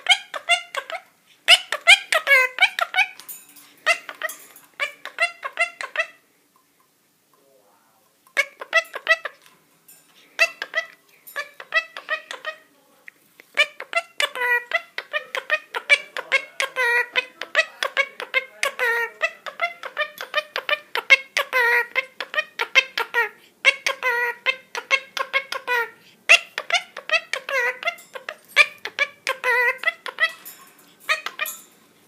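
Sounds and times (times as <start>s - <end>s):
parrot chattering: 0.0s - 6.3s, 8.3s - 9.5s, 10.3s - 12.7s, 13.5s - 31.8s.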